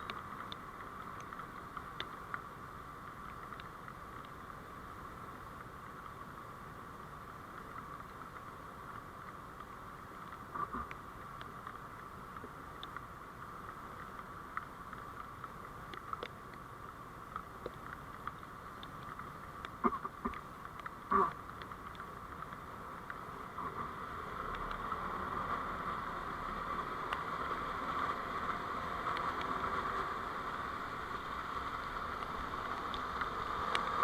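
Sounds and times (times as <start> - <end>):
light clicks and ticks: 0.0 - 6.4, 7.1 - 34.0
vehicle running noise: 23.3 - 34.0.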